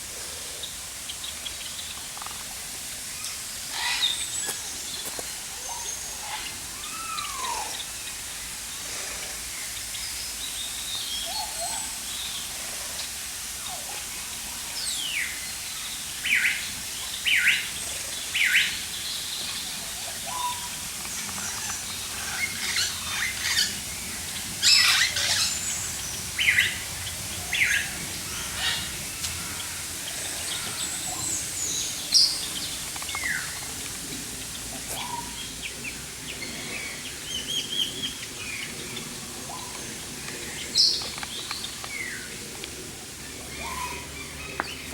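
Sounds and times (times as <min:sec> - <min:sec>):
steady background hiss: 0:00.0 - 0:44.9
birds chirping and calling: 0:16.3 - 0:44.9.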